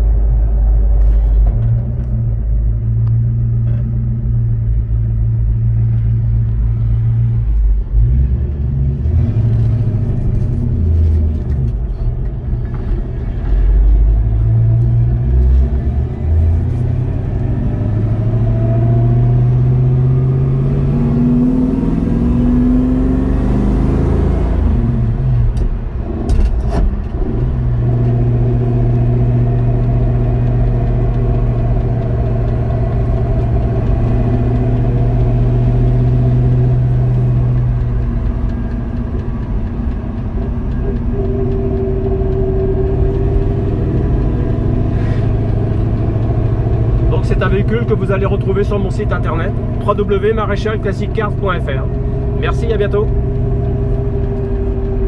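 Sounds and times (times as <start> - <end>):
car engine driving: 0.0 - 55.0
gear change clicks: 24.3 - 55.0.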